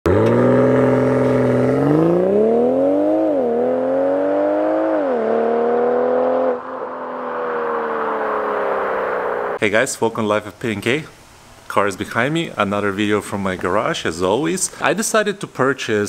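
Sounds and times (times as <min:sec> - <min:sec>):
car engine accelerating: 0:00.0 - 0:09.6.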